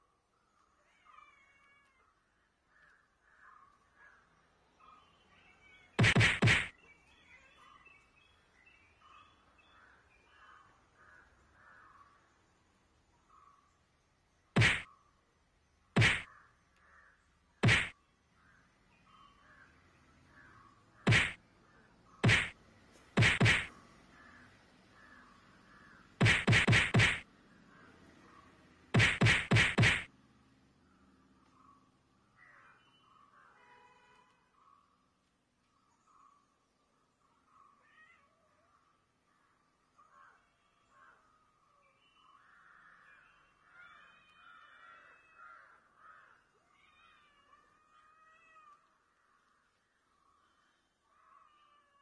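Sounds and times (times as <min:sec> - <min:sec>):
cats yowling: 0:00.8 - 0:02.2, 0:46.5 - 0:49.0, 0:51.2 - 0:52.0
punching whacks: 0:06.0 - 0:06.7, 0:14.6 - 0:14.9, 0:16.0 - 0:16.3, 0:17.6 - 0:18.0, 0:21.1 - 0:21.4, 0:22.2 - 0:22.6, 0:23.2 - 0:23.7, 0:26.2 - 0:27.3, 0:29.0 - 0:30.1.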